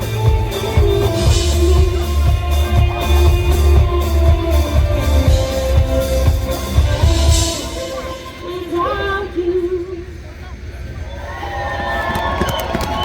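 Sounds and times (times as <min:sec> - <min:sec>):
steady drum beat: 0:00.0 - 0:08.5
electric guitar: 0:00.0 - 0:09.9
heavy bass line: 0:00.0 - 0:10.0.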